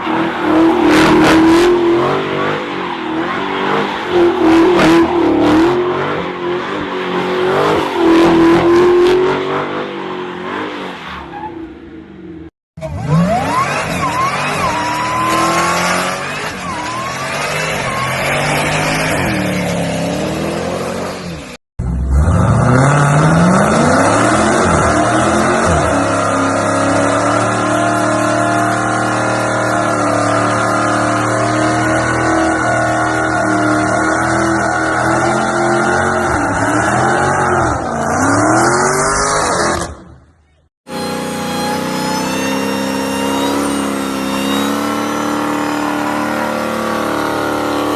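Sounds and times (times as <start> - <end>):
car engine revving: 12.8 - 47.9.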